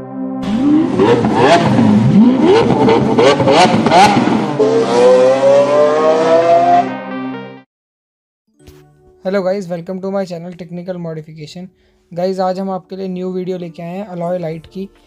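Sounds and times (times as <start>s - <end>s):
ambient music drone: 0.0s - 7.4s
car engine revving: 0.4s - 7.3s.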